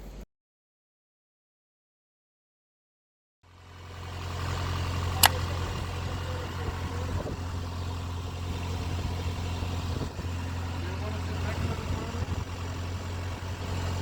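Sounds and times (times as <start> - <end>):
engine running with low hum: 3.4 - 14.0.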